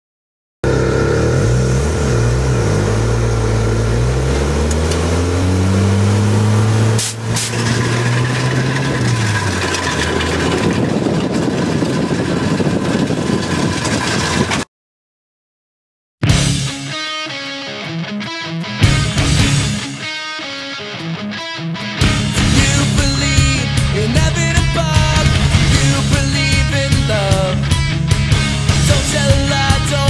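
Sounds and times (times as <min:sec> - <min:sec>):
vehicle engine revving: 0:00.6 - 0:14.7, 0:22.0 - 0:27.6.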